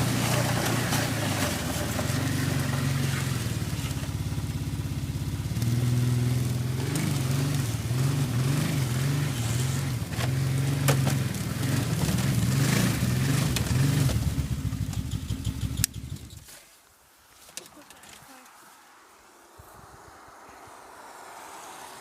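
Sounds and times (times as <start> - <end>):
vehicle engine revving: 0.0 - 16.4.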